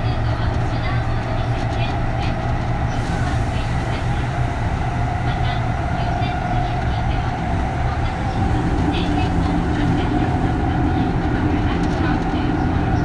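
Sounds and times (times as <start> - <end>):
wheels rumbling on track: 0.0 - 13.0.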